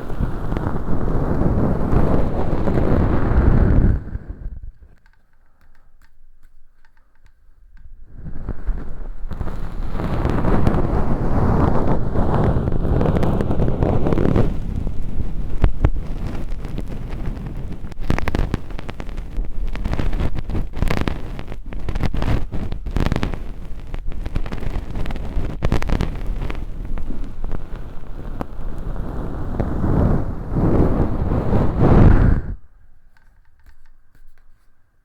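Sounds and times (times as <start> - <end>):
ear pick scratching and clicking: 4.6 - 11.7, 13.1 - 34.8.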